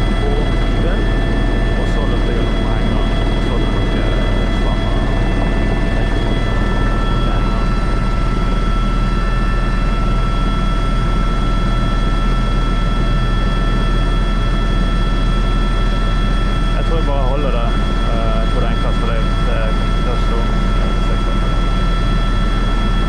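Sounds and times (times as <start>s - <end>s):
high whining tones: 0.0s - 12.3s
helicopter rotor and turbine din: 0.0s - 23.0s.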